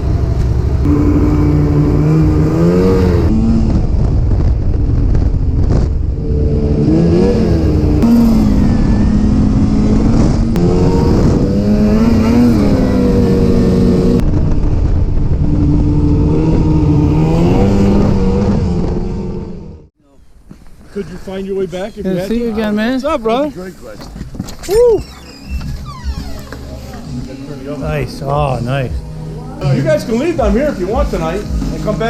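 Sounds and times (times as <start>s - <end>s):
low rumble: 0.0s - 19.9s
snowmobile engine revving: 0.8s - 3.9s, 6.1s - 14.2s, 15.2s - 19.9s.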